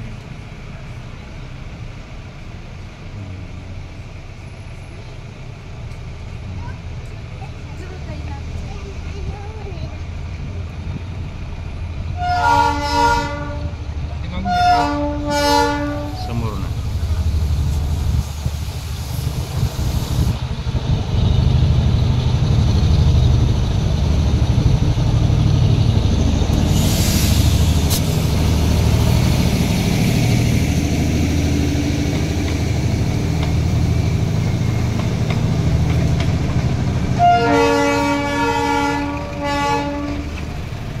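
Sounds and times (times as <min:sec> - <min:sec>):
train engine rumble: 0:00.0 - 0:41.0
train horn blasts: 0:12.2 - 0:13.8, 0:14.4 - 0:16.5, 0:37.2 - 0:40.3
brief hiss: 0:26.7 - 0:28.4.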